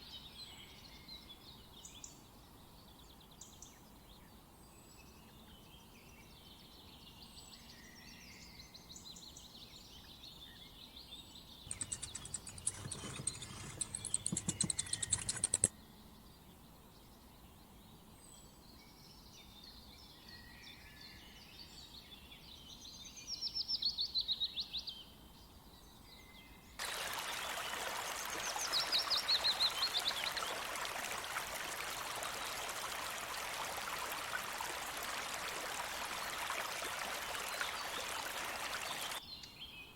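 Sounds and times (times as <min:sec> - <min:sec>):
birds singing and calling: 0:11.7 - 0:15.7, 0:26.8 - 0:39.9
rapid rattling bird trill: 0:11.7 - 0:15.7, 0:26.8 - 0:39.2
running water: 0:11.7 - 0:15.7, 0:26.8 - 0:39.2.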